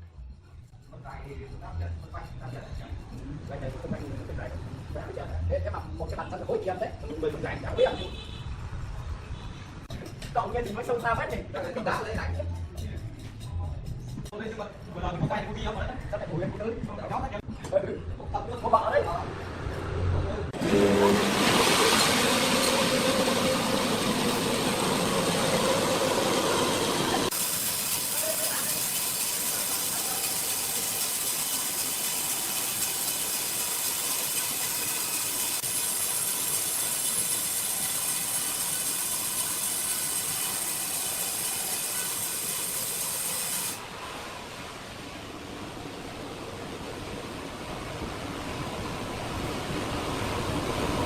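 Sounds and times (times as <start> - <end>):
high machine whines: 20.6 - 43.9
hissing machinery noise: 20.6 - 51.0.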